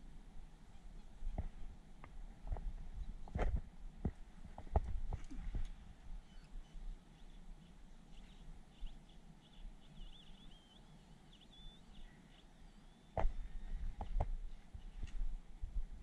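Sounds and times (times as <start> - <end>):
faint bird chirps: 0.6 - 1.8, 6.2 - 13.8.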